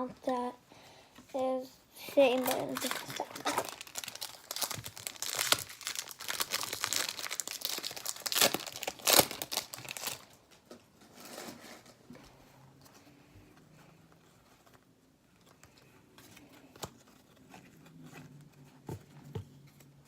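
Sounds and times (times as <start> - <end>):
foil wrapper crinkling: 2.2 - 10.5.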